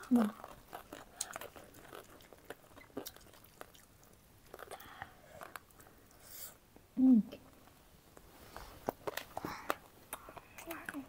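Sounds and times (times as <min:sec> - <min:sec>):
chewing and crunching food: 0:00.0 - 0:06.2, 0:08.5 - 0:11.0.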